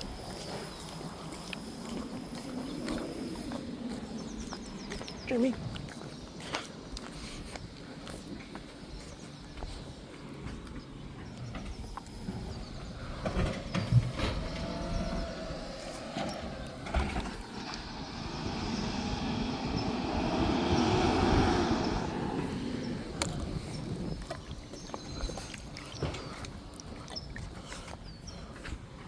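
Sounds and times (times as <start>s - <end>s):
garbage truck running: 10.8s - 24.5s
garbage truck clunks: 11.5s - 18.0s.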